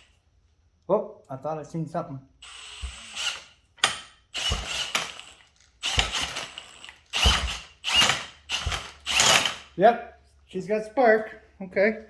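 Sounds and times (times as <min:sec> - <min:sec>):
clicking and ratcheting: 0:02.5 - 0:09.8.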